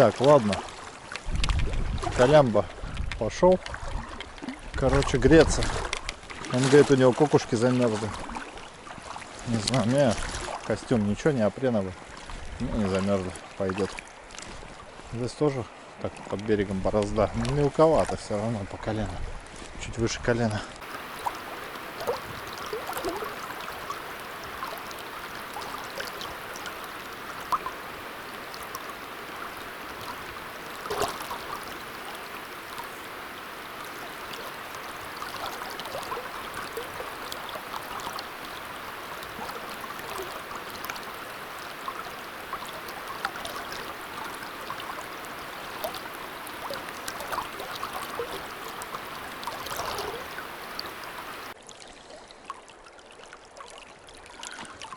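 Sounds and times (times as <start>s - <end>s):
river water flowing: 20.8s - 54.9s.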